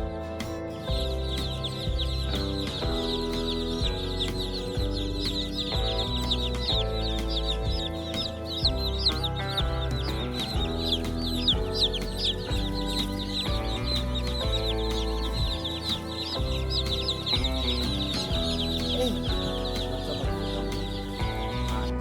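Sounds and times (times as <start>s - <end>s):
background music with chords and bass: 0.0s - 22.0s
chicks peeping: 0.0s - 22.0s.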